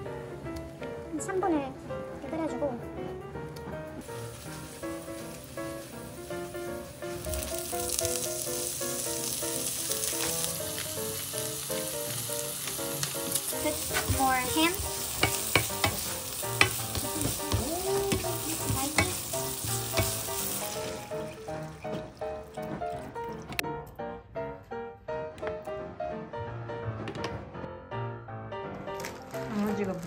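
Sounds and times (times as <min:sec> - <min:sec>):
shrimp sizzling in hot oil: 0:04.0 - 0:22.4.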